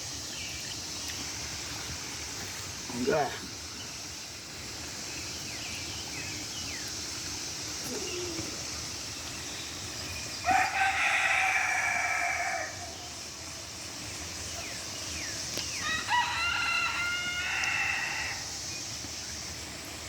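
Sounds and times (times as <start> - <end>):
rooster crowing: 10.4 - 13.2, 15.8 - 18.6.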